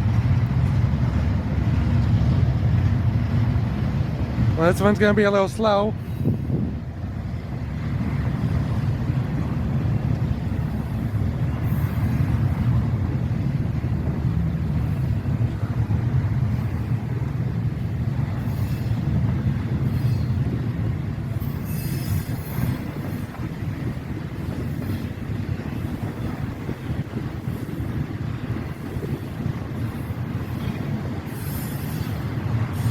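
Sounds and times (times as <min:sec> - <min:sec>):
train wheels rumbling: 0:00.0 - 0:32.9
brief high-pitched squeals: 0:21.5 - 0:22.7.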